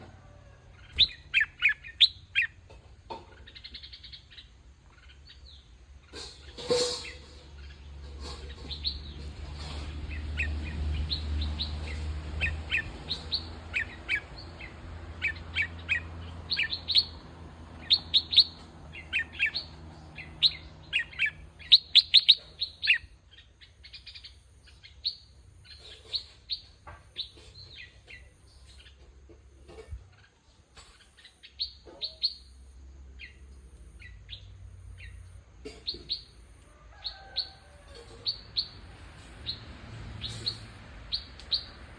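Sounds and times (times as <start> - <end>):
birds chirping sharply: 0.8 - 2.6, 9.8 - 29.0.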